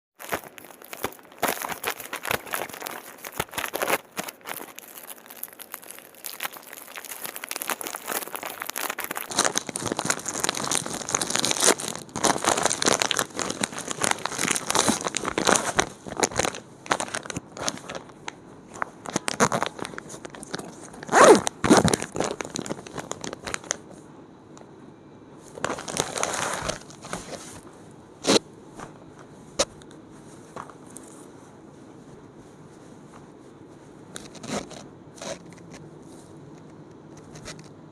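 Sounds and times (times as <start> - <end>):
plastic packaging rustling and tearing: 0.2 - 23.9, 25.5 - 27.6, 34.1 - 35.8.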